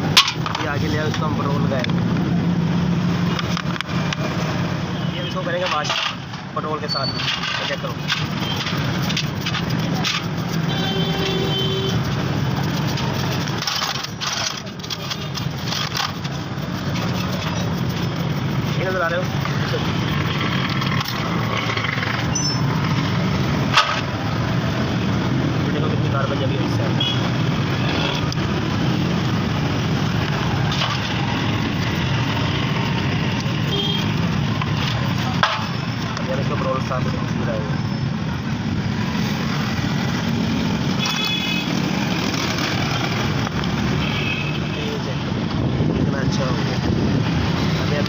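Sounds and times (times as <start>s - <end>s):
metal parts clicking and clinking: 12.6s - 18.0s.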